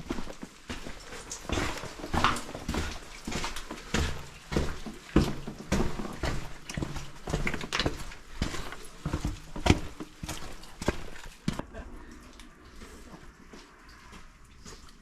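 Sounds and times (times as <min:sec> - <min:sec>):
footsteps on stony path: 0:00.0 - 0:11.8.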